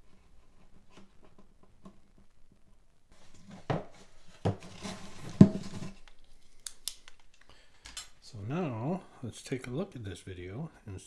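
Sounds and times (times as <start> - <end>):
rustling: 0.0 - 10.1
faint clicks: 6.0 - 8.3.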